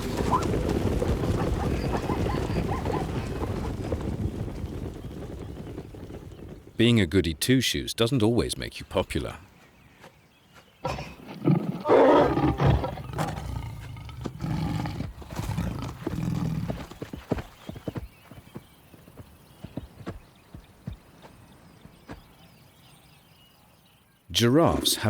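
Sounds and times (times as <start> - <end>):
hoofbeats: 0.0 - 7.2, 9.0 - 22.8
loud animal calls: 10.8 - 16.9.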